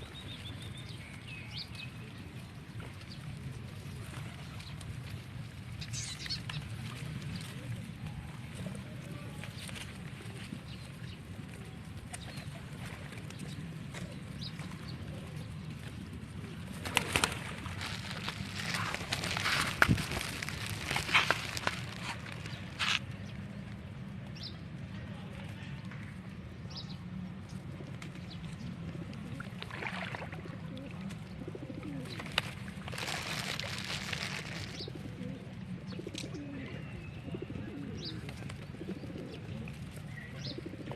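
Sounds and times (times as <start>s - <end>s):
wings fluttering: 16.6s - 23.1s, 32.0s - 35.0s
birds calling: 16.8s - 23.4s
pigeons cooing: 27.8s - 29.6s, 30.2s - 33.1s, 34.6s - 40.9s.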